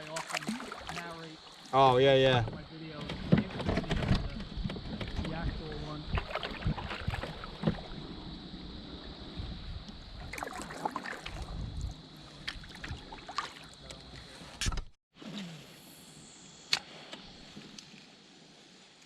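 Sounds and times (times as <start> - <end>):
paddle strokes and water splashes: 0.0 - 14.6.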